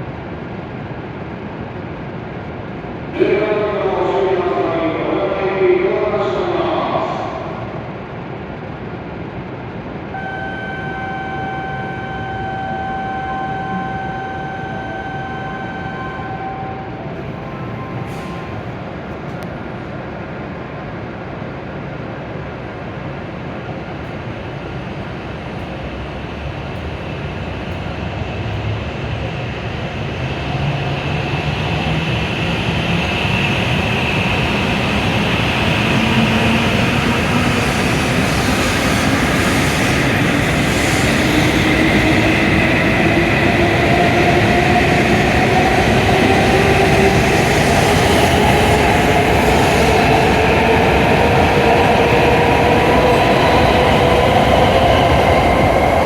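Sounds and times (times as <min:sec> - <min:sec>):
train running noise: 0:00.0 - 0:56.0
train traction motors whining: 0:10.1 - 0:18.5.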